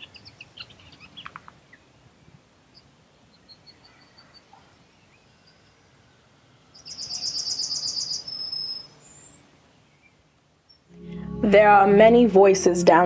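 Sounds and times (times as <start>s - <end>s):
faint bird chirps: 2.7s - 10.9s
bird trill: 6.7s - 10.1s
short rising bird note: 10.9s - 11.5s.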